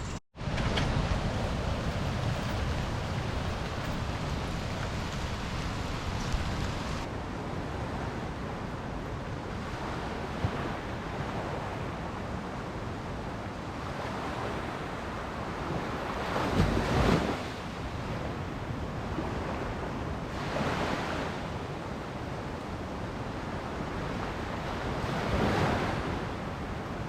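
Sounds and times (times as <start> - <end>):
ocean surf on a beach: 0.0 - 27.0
wind on microphone: 0.0 - 27.0.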